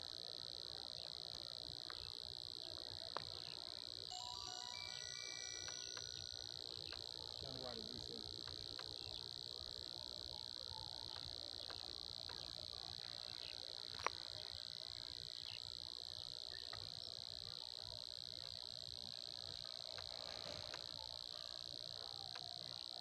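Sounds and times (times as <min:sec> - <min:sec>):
frogs and insects chorus: 0:00.0 - 0:23.0
faint ticks: 0:01.3 - 0:02.2, 0:03.0 - 0:03.6, 0:04.5 - 0:09.3, 0:11.0 - 0:14.5, 0:16.5 - 0:17.1, 0:19.6 - 0:21.1, 0:22.2 - 0:22.6.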